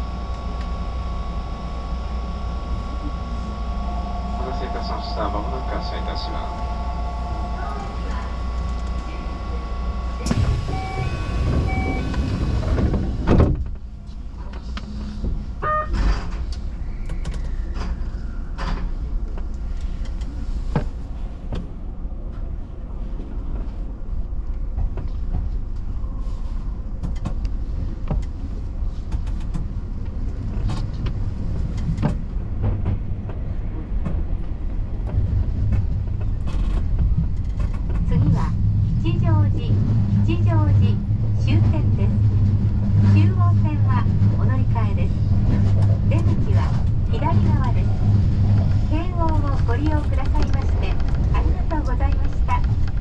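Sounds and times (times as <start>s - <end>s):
train running rumble: 0.0s - 53.0s
short beep: 10.2s - 12.3s.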